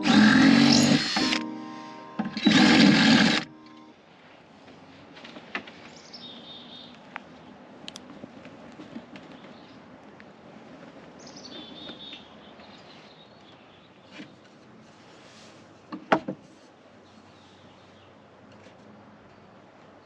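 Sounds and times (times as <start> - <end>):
outdoor background noise: 0.0 - 20.0
bird chirping: 6.0 - 7.0.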